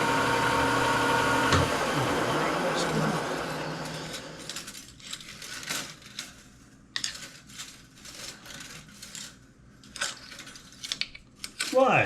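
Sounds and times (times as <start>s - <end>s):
metal chips crinkling and scraping: 4.2s - 12.0s.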